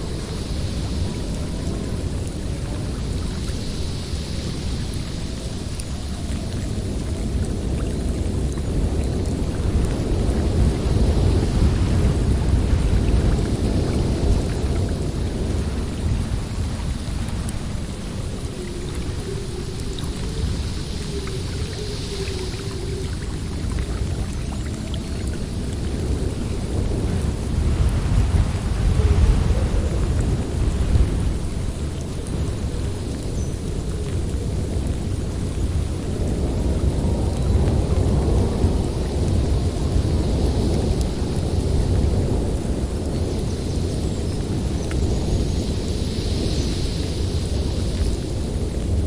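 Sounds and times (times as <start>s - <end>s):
howling storm wind: 0.0s - 49.0s.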